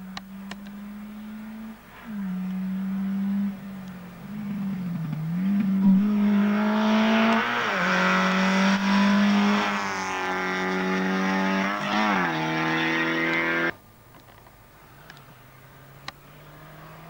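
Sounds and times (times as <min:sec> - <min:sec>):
rally car engine revving past: 0:00.6 - 0:13.8, 0:15.7 - 0:17.0.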